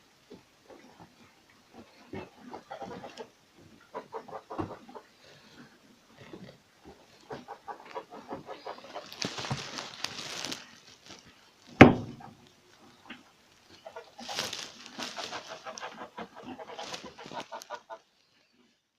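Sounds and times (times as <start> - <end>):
rabbits scrabbling and rustling: 0.3 - 5.1, 6.4 - 18.0
loud sharp thump: 11.8 - 12.2.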